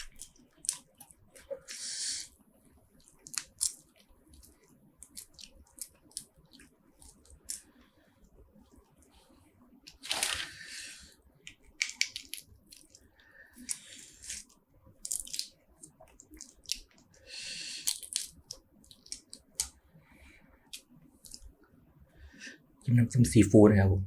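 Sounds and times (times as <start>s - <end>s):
wet tearing and chewing: 0.0s - 1.5s, 3.0s - 7.6s, 9.9s - 10.6s, 11.7s - 13.0s, 13.6s - 17.1s, 17.8s - 19.7s.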